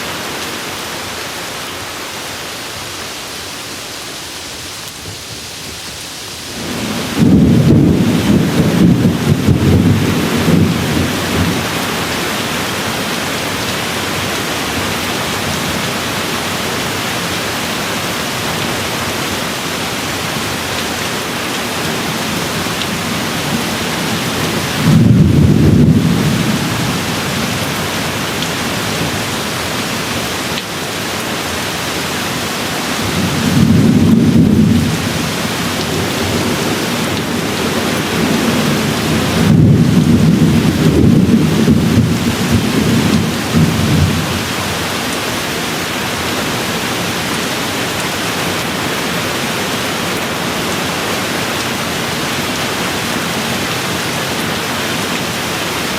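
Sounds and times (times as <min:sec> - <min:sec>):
steady rain falling: 0:00.0 - 0:55.9
distant thunder rumbling: 0:06.5 - 0:12.1, 0:22.1 - 0:29.4, 0:32.9 - 0:44.9.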